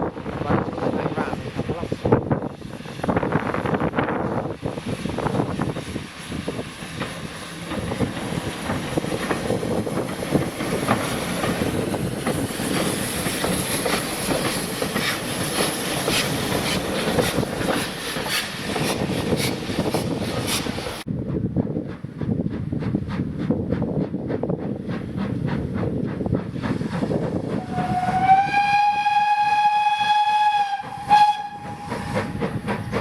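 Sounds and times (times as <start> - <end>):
train wheels clickety-clack: 1.0 - 33.0.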